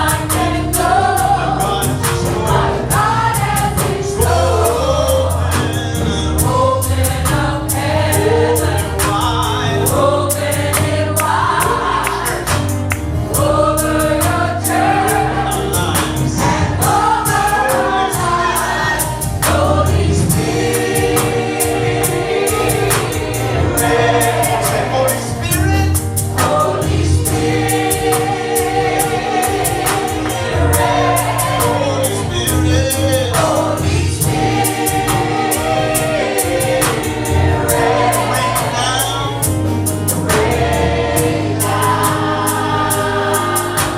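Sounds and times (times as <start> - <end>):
bass line: 0.0 - 43.9
gospel choir singing: 0.0 - 43.9.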